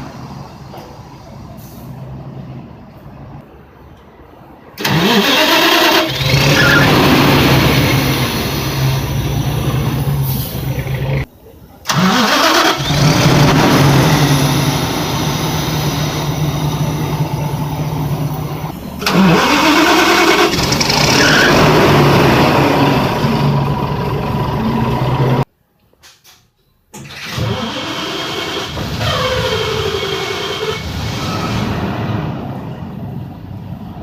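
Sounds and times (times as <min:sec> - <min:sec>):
bus engine revving: 0:04.8 - 0:11.3, 0:11.9 - 0:25.5, 0:27.0 - 0:34.0.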